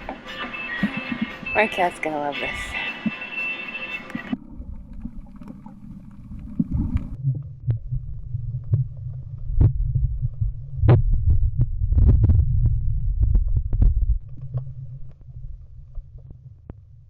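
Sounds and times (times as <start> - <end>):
muffled underwater rumble: 4.1 - 17.0
sharp clicks and pops: 8.6 - 16.9.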